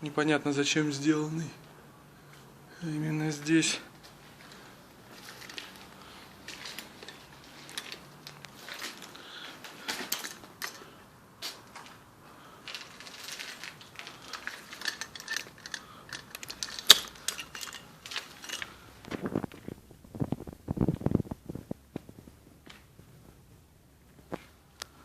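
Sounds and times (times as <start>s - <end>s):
small clicks crunches and rattles: 4.4s - 12.0s, 12.6s - 23.0s.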